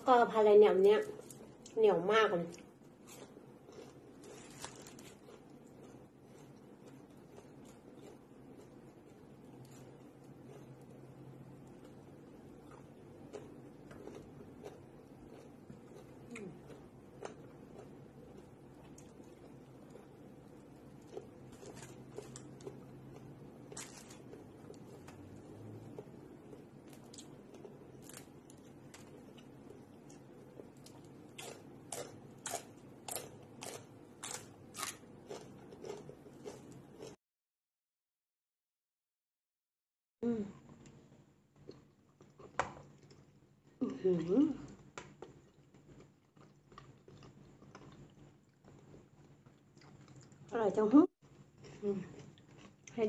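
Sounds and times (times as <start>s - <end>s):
person chewing food: 2.8s - 37.2s, 44.7s - 50.5s, 51.6s - 52.9s.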